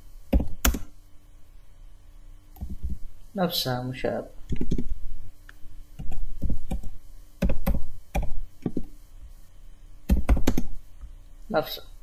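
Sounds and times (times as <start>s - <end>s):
computer keyboard typing: 0.3s - 0.9s, 4.5s - 5.0s, 6.0s - 8.9s, 10.1s - 10.8s.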